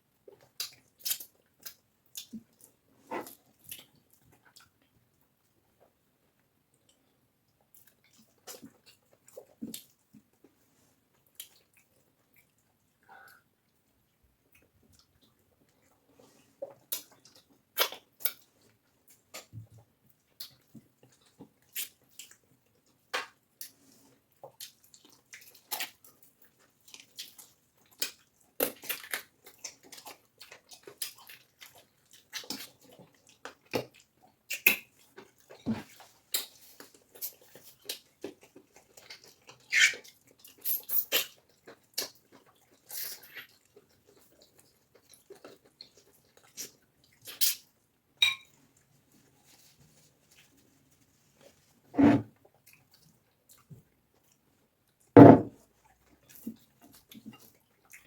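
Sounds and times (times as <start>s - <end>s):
wet chewing and smacking: 0.1s - 49.6s, 52.3s - 58.0s.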